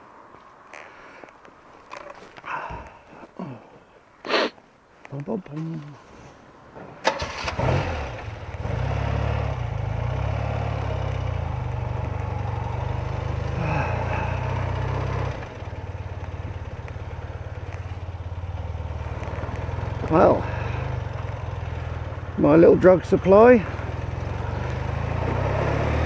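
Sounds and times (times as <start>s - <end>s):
motorcycle engine starting and idling: 6.8s - 26.0s.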